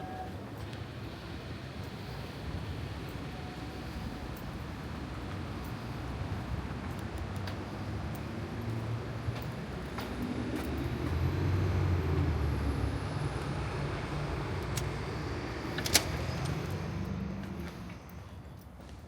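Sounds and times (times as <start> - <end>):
vehicle engine passing: 10.0 - 18.1.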